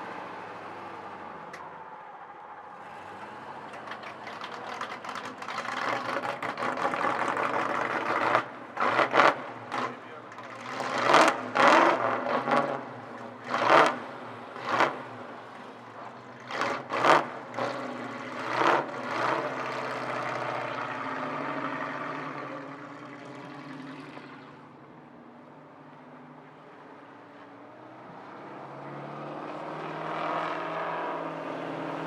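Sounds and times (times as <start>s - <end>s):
race car engine revving: 2.8s - 24.5s.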